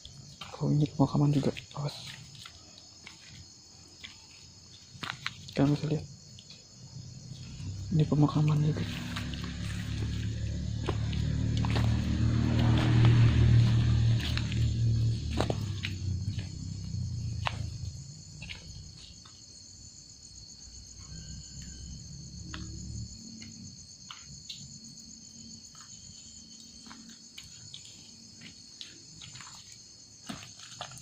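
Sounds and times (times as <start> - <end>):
crickets chirring: 0.0 - 31.0
low rumble: 7.6 - 18.4.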